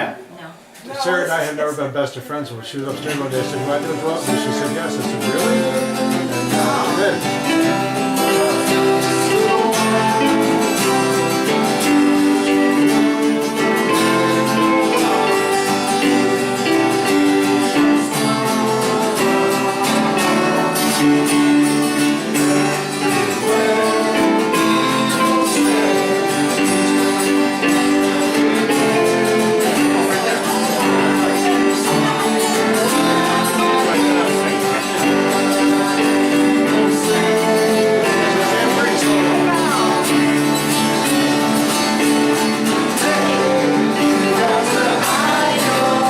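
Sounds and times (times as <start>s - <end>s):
strummed guitar music: 2.7s - 46.0s.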